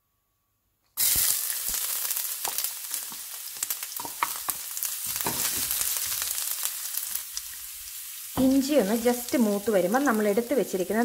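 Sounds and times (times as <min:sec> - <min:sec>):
ginger sizzling in hot oil: 0:01.0 - 0:11.0.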